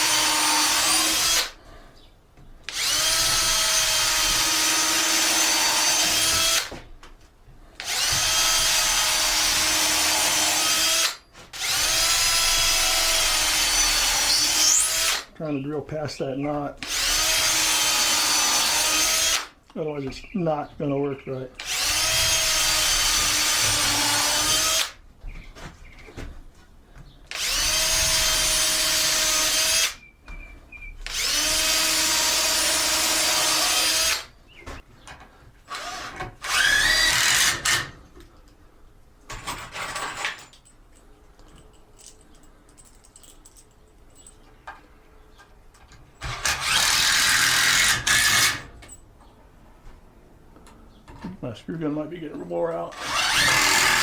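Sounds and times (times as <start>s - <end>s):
electric screw gun whining: 0.0s - 1.6s, 2.7s - 6.7s, 7.8s - 15.3s, 16.8s - 19.5s, 21.6s - 25.0s, 27.3s - 30.0s, 31.1s - 34.3s, 35.7s - 38.0s, 46.2s - 48.7s, 53.0s - 54.0s.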